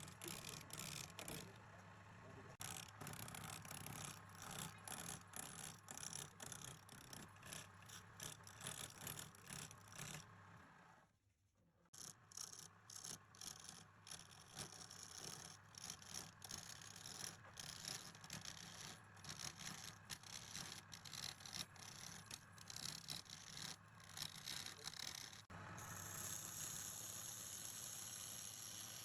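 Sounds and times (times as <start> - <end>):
tool scraping spinning wood: 0.0 - 1.6, 12.0 - 29.0.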